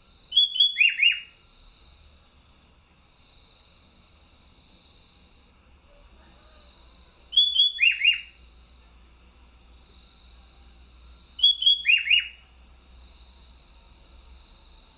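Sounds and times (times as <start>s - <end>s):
bulbul whistled song: 0.3s - 1.4s, 7.3s - 8.4s, 11.4s - 12.4s.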